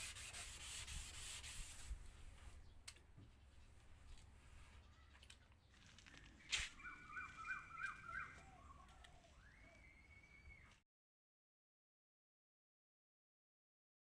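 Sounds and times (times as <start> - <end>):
faint bird calls: 4.6 - 5.4, 6.2 - 10.8.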